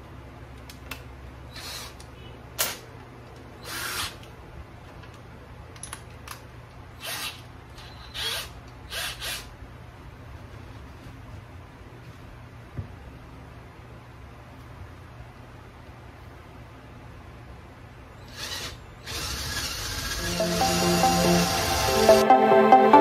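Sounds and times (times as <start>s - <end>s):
power drill bursts: 1.5s - 2.0s, 3.6s - 4.2s, 7.0s - 9.5s, 18.3s - 22.2s.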